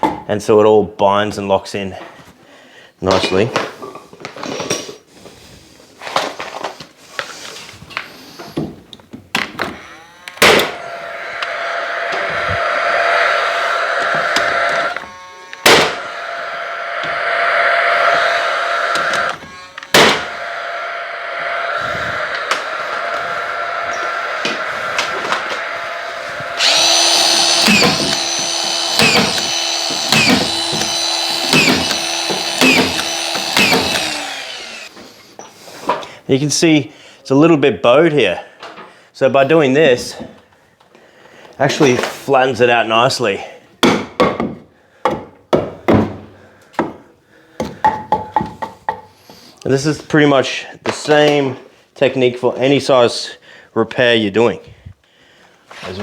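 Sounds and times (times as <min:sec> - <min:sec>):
power screwdriver whining: 0:09.4 - 0:35.0
small machine running: 0:09.6 - 0:34.9.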